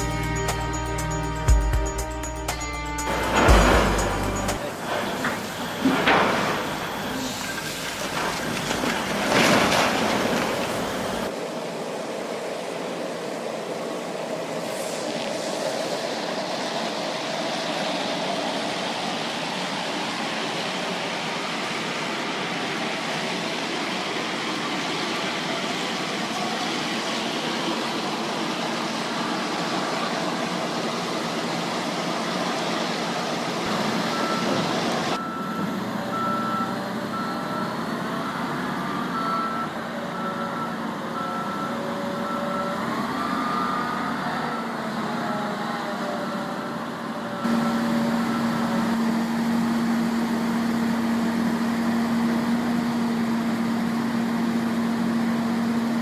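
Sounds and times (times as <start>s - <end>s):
reversing alarm beeping: 0.0s - 7.6s, 33.9s - 44.9s, 46.5s - 49.4s
machinery rumble: 0.0s - 53.9s.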